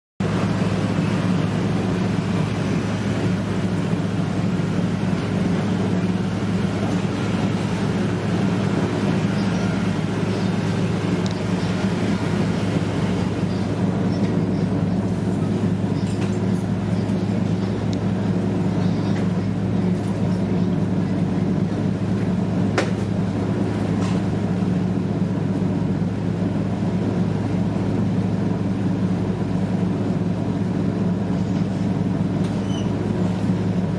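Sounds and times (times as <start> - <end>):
ferry engines droning: 0.2 - 33.9.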